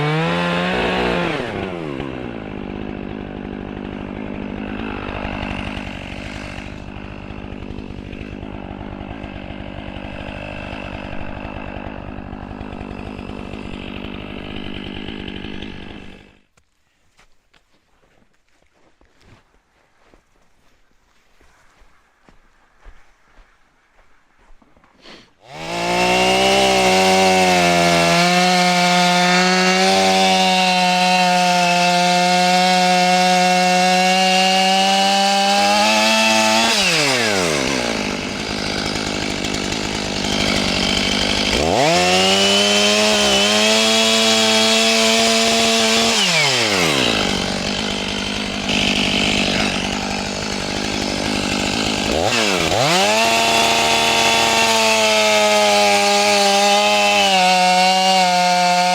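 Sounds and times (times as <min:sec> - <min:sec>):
chainsaw engine revving: 0:00.0 - 0:16.5, 0:25.4 - 0:58.9.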